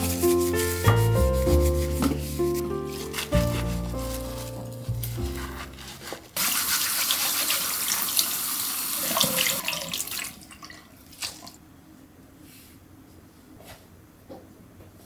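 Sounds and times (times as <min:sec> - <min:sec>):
water running from a tap: 0:06.0 - 0:11.5.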